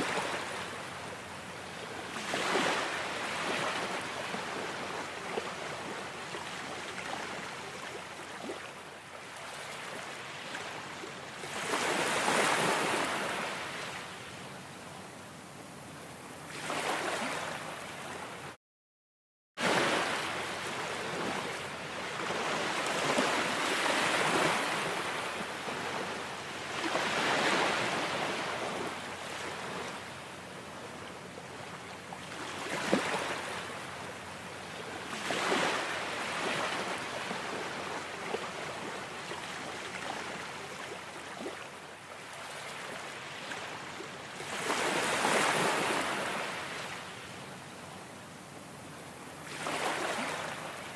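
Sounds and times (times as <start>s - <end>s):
ocean waves washing in: 19.6s - 30.8s.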